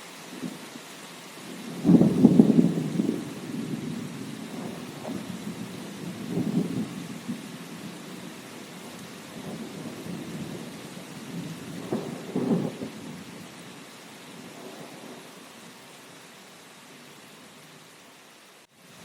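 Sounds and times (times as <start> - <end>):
steady rain: 0.0 - 19.0
low thunder rumbling: 1.4 - 13.5, 14.4 - 15.3.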